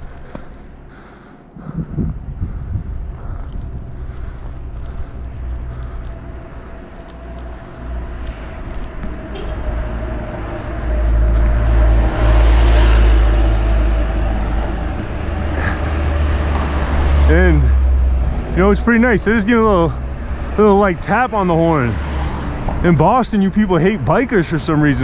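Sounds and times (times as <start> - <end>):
vehicle passing by: 0.0 - 25.0.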